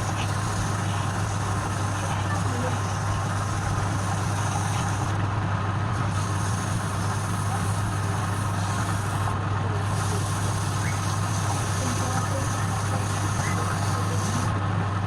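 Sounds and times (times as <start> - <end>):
wood lathe motor running: 0.0 - 15.0.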